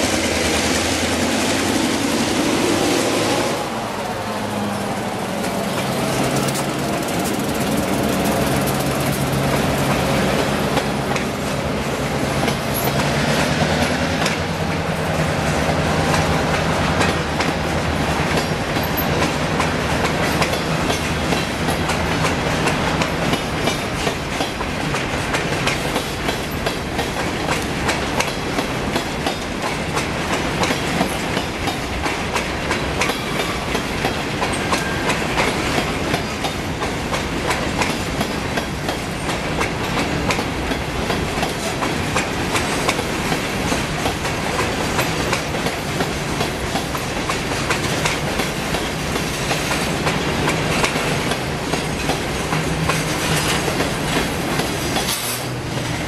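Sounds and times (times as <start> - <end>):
train wheels clacking: 0.0 - 3.8, 4.5 - 56.0.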